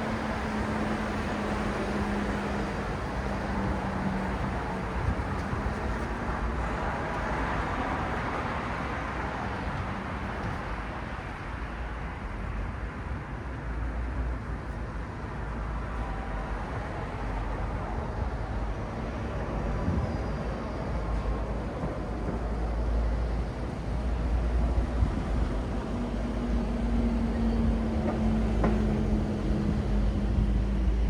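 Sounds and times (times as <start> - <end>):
passing traffic rumble: 0.0 - 31.0
low engine hum: 19.4 - 31.0.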